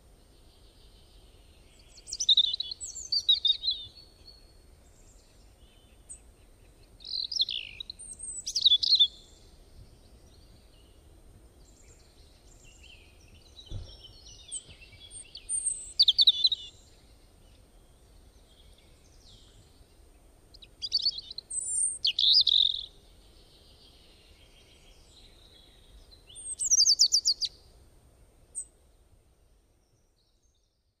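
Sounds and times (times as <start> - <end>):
birds chirping and whistling: 1.9 - 4.0, 7.1 - 9.4, 12.5 - 16.8, 20.8 - 22.9, 26.3 - 27.5
soft low thump: 13.6 - 14.8.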